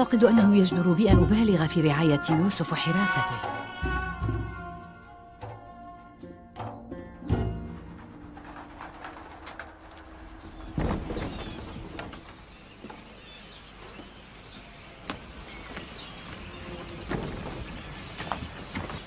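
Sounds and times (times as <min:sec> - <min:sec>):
birds chirping: 0:08.4 - 0:19.0.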